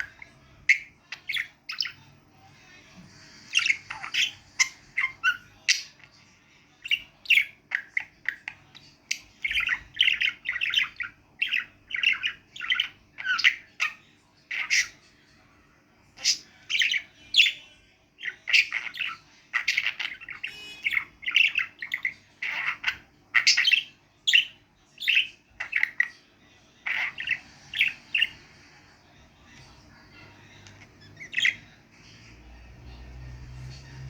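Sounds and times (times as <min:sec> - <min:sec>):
budgerigar chattering and chirping: 0:00.0 - 0:02.1, 0:03.5 - 0:06.1, 0:06.8 - 0:15.0, 0:16.2 - 0:17.6, 0:18.2 - 0:26.2, 0:26.8 - 0:28.4, 0:30.2 - 0:31.8.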